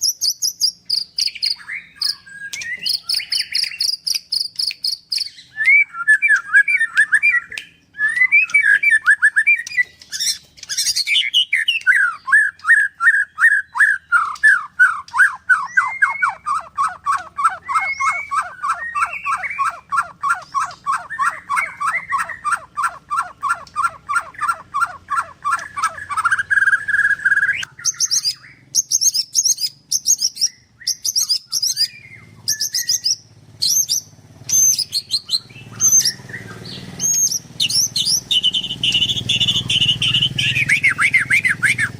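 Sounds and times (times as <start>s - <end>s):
bird singing: 0.0s - 41.9s
held whistle: 1.2s - 9.9s, 37.0s - 41.9s.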